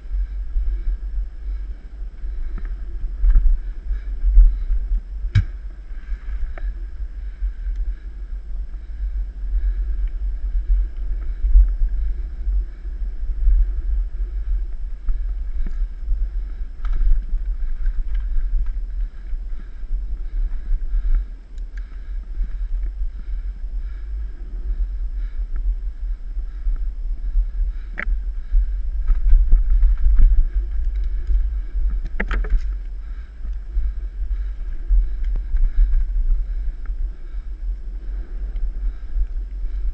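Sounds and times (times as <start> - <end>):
bike clicks and rattles: 27.8 - 37.0.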